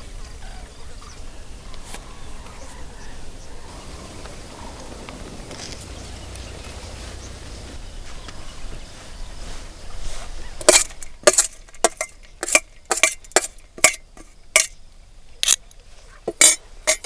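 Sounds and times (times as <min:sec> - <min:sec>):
low background noise: 0:00.0 - 0:17.0
kitchen utensils clinking: 0:16.3 - 0:17.0.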